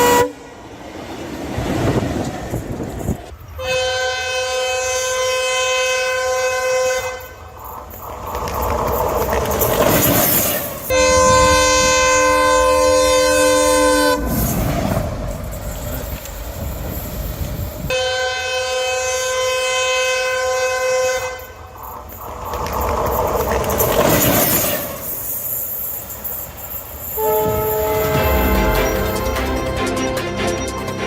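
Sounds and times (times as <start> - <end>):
locomotive horn blasts: 0.0 - 0.5, 3.6 - 7.4, 10.9 - 14.4, 17.9 - 21.6, 27.2 - 29.6
locomotive running on track: 0.0 - 31.0.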